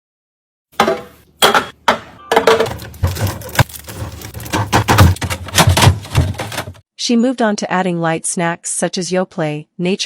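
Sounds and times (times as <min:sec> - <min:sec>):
groceries and plastic containers clattering: 0:00.8 - 0:06.8.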